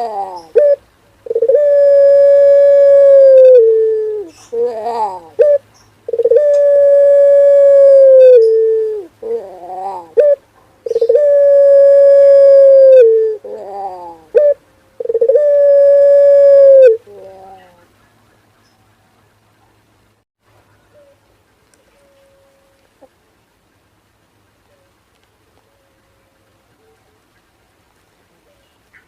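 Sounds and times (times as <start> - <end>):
dove cooing: 0.0 - 17.9.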